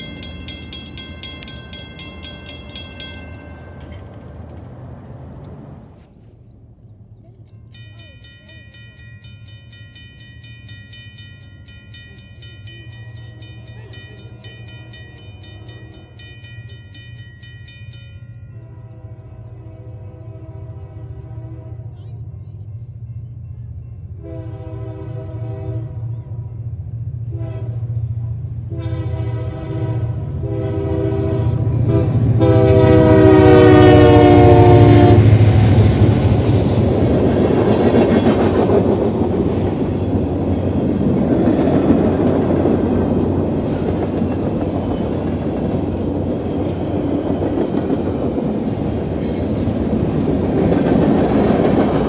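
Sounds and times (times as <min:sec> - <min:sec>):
freight cars rumbling past: 0:00.0 - 0:07.5, 0:25.9 - 0:52.0
train horn blasts: 0:13.4 - 0:16.4, 0:18.5 - 0:22.4, 0:24.1 - 0:26.6, 0:27.2 - 0:35.8.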